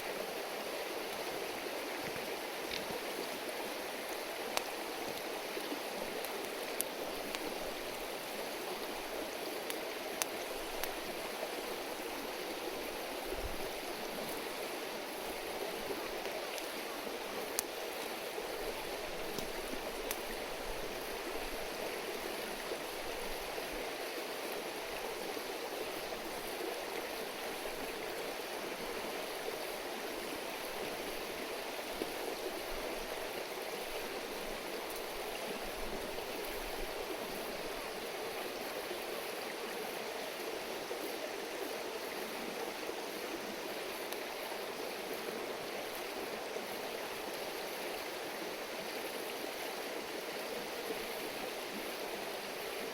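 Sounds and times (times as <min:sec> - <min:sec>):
river babbling: 0:00.0 - 0:52.9
faint clicks: 0:02.6 - 0:02.9, 0:09.6 - 0:11.0, 0:19.3 - 0:20.3.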